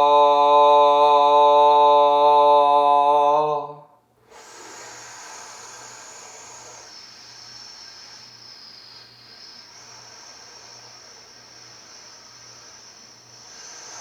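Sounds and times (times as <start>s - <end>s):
breath drawn through pursed lips: 4.2s - 14.0s.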